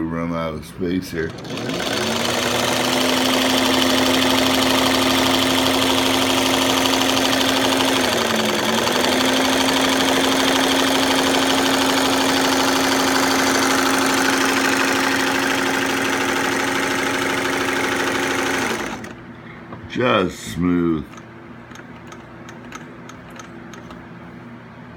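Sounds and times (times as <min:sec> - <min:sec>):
sewing machine motor hum: 0:01.1 - 0:19.4.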